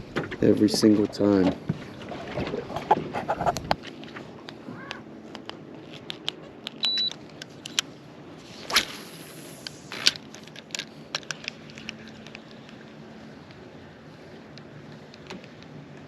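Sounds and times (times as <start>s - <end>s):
fishing rod swish: 8.4s - 9.9s
fishing rod and reel clicks: 8.6s - 13.6s, 14.4s - 16.0s.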